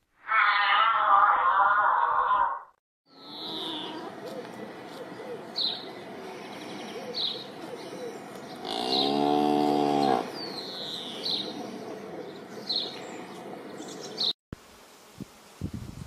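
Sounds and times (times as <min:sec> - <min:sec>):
cow mooing: 0:03.1 - 0:04.1, 0:08.6 - 0:10.4.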